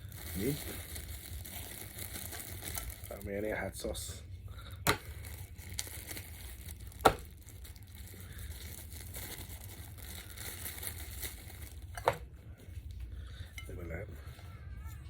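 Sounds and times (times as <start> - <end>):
plastic packaging crinkling: 0.0 - 3.7, 5.0 - 12.2.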